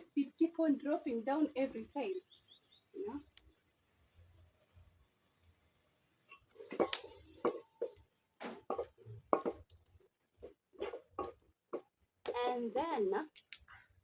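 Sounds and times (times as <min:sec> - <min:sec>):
objects knocking and clattering: 0:06.3 - 0:12.1.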